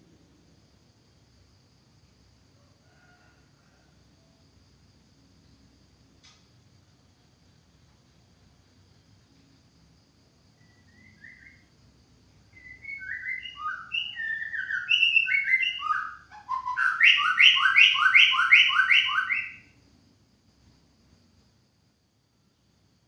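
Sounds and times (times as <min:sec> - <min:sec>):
bird singing whistled phrases: 0:10.6 - 0:11.7, 0:12.5 - 0:19.7.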